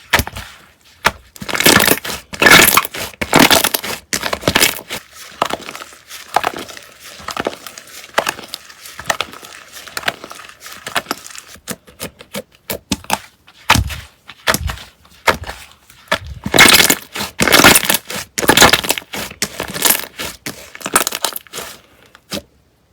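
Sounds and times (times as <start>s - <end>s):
slime crackling and popping: 1.0s - 11.4s, 16.2s - 21.6s.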